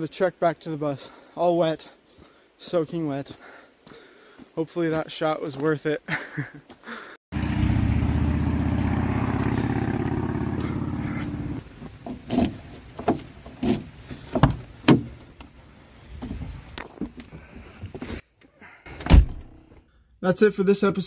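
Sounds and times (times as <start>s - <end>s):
engine running with pulsing beat: 7.4s - 11.6s
knocks and thumps: 14.2s - 15.2s.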